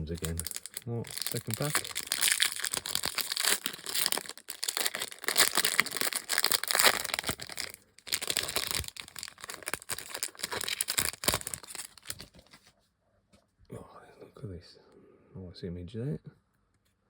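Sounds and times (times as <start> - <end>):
wrapper tearing and crinkling: 0.0 - 12.6.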